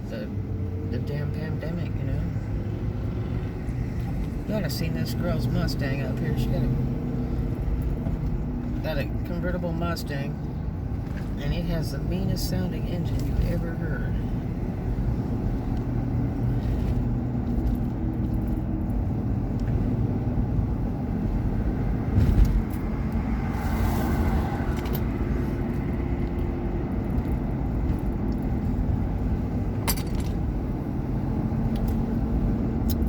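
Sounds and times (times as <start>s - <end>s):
car engine and road noise: 0.0s - 33.0s
short thump: 22.1s - 22.7s.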